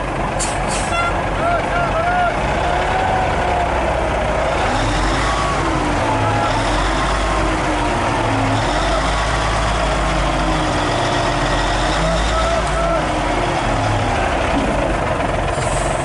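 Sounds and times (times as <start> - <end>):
road noise: 0.0 - 16.0
truck diesel engine drone: 0.0 - 16.0.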